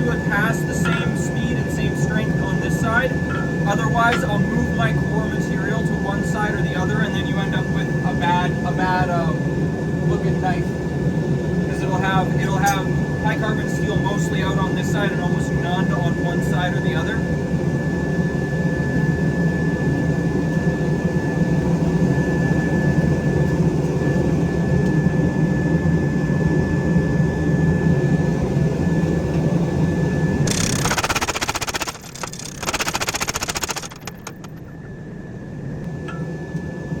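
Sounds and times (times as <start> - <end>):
fast dense rattling: 30.5 - 34.6
forging machinery humming: 30.5 - 34.9.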